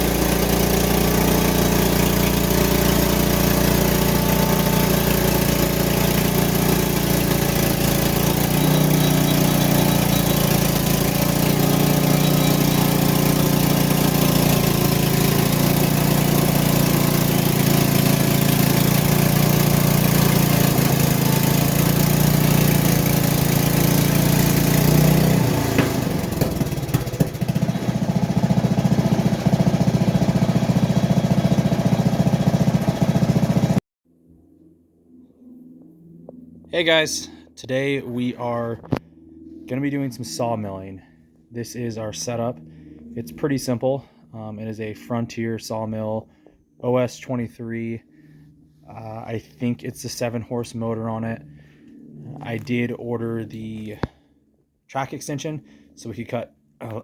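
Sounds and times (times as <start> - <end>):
clicks: 0.0 - 27.5
small gasoline engine running: 0.0 - 33.8.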